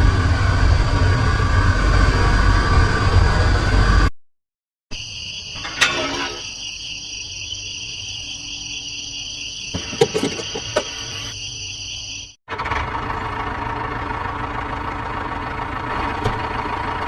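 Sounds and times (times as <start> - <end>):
crickets chirring: 4.9 - 12.4.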